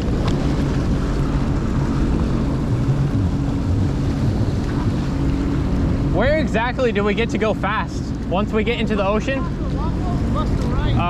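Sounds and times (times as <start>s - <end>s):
hiss of water and wind: 0.0s - 11.0s
jet ski engine humming: 0.0s - 11.0s.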